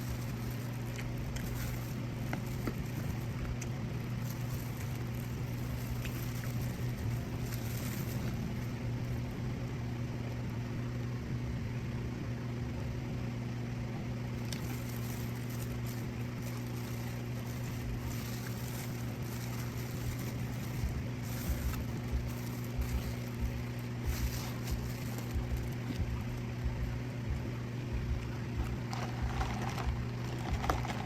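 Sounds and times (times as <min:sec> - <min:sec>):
low mechanical hum: 0:00.0 - 0:31.0.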